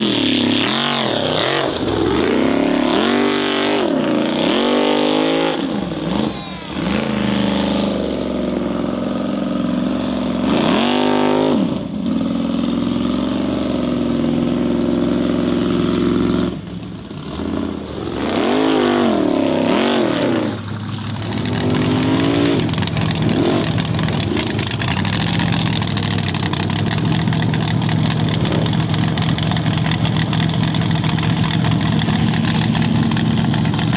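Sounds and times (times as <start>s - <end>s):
buggy engine revving: 0.0s - 33.9s.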